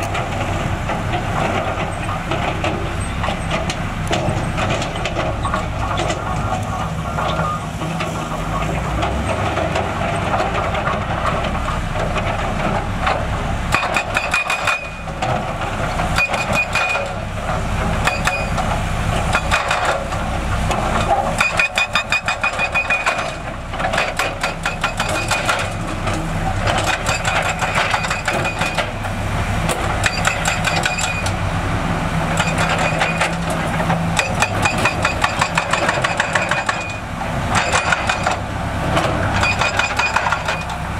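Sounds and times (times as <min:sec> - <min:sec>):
diesel machinery engines running: 0:00.0 - 0:40.9
rapid metallic clanking: 0:32.3 - 0:40.9.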